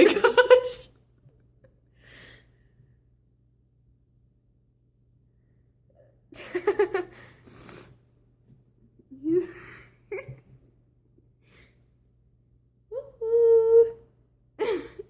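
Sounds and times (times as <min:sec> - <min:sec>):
person laughing: 0:00.0 - 0:00.9, 0:06.4 - 0:07.1, 0:14.6 - 0:15.0
person breathing: 0:01.9 - 0:03.1, 0:07.1 - 0:08.0, 0:11.4 - 0:12.0.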